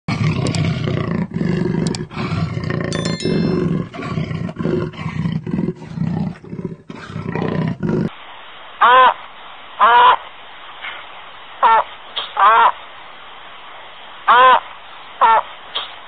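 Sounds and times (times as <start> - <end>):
animal roaring: 0.1 - 2.9, 3.8 - 8.1
brief high chime: 3.0 - 4.2.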